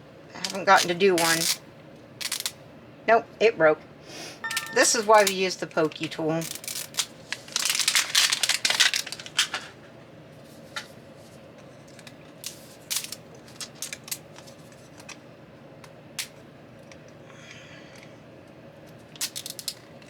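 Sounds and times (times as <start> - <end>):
small plastic pieces clicking: 1.2 - 1.6, 2.2 - 2.6, 11.9 - 15.2, 19.2 - 20.0
plastic zip bag crackling: 2.2 - 2.6, 5.9 - 9.6.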